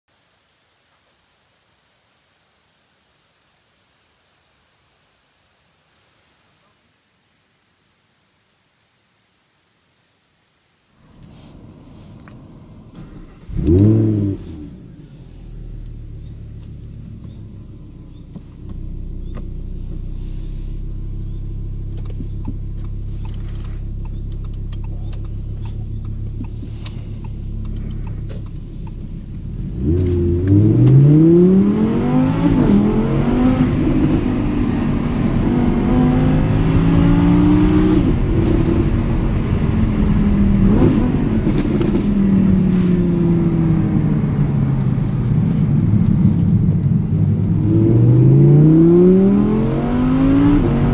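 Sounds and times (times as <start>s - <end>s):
car engine revving: 11.2s - 50.9s.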